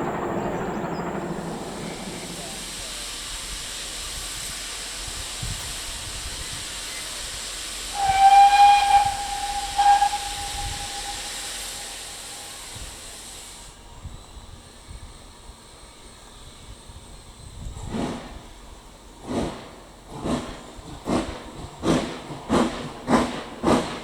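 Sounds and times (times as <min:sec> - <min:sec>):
steam hissing: 0:00.0 - 0:13.8, 0:19.2 - 0:24.0
steam whistle blasts: 0:07.9 - 0:13.5.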